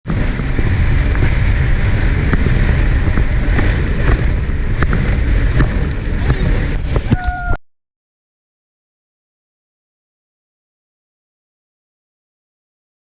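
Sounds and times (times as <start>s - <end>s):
jet ski engine rumble: 0.0s - 7.6s
wind buffeting microphone: 0.1s - 7.6s.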